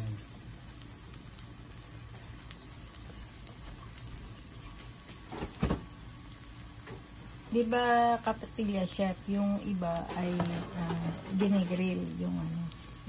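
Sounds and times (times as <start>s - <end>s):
oil sizzling in a pan: 0.0s - 13.0s
thump: 5.4s - 5.8s.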